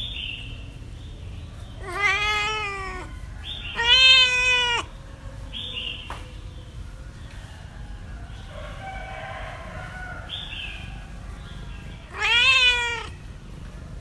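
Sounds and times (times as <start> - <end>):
cat meowing: 1.8 - 5.0, 12.0 - 13.3.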